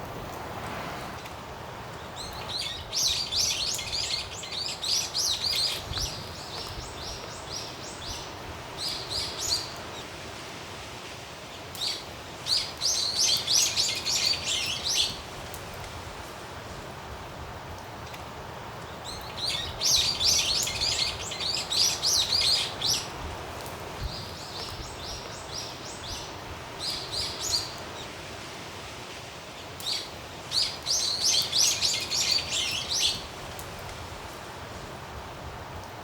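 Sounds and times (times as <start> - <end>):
background hiss: 0.0 - 36.0
songbird singing: 1.9 - 10.2, 11.6 - 15.3, 18.8 - 28.2, 29.6 - 33.6.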